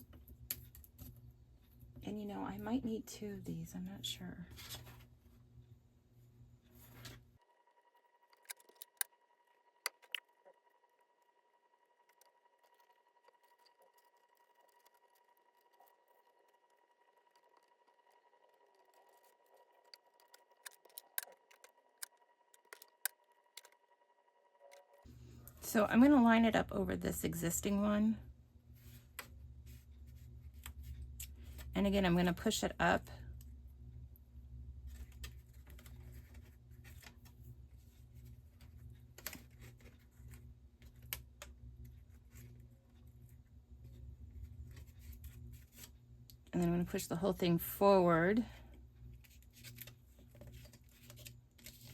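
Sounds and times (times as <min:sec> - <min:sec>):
low steady hum: 0:00.0 - 0:51.9
small tools clicking and tapping: 0:18.7 - 0:23.8.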